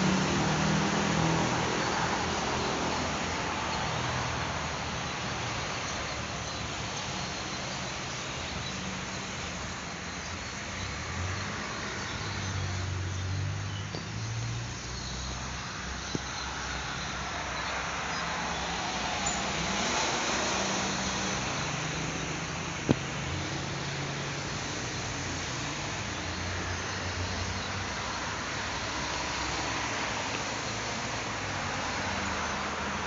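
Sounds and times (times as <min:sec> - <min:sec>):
exhaust fan rushing and humming: 0:00.0 - 0:14.2.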